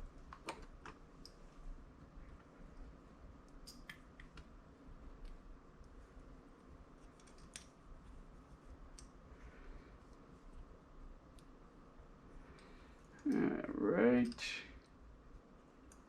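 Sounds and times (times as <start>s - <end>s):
faint clicks of small metal parts: 0.3s - 1.4s, 2.2s - 8.2s, 8.8s - 10.7s, 11.3s - 11.6s, 12.4s - 13.5s, 15.6s - 16.0s.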